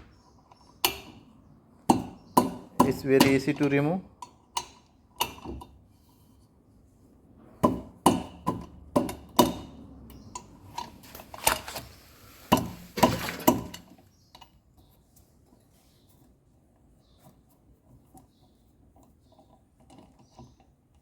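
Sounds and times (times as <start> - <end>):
tools knocking and clattering: 1.9 - 5.8, 12.5 - 14.6.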